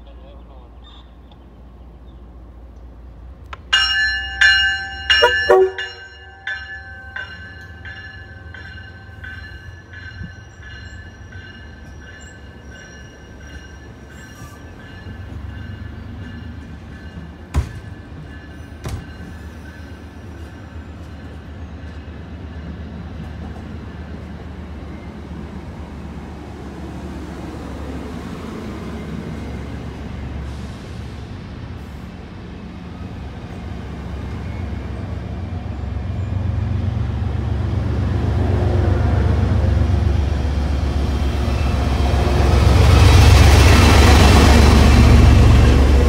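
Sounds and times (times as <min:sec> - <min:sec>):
train coaches rumbling past: 0:00.0 - 0:46.0
train bell ringing: 0:03.7 - 0:25.4, 0:41.3 - 0:46.0
train horn blasts: 0:05.1 - 0:06.1.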